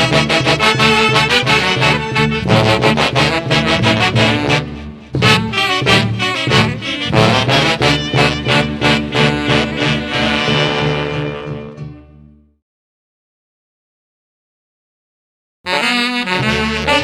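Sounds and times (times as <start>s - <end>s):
dance band with saxophones and brass: 0.0s - 12.2s, 15.7s - 17.0s.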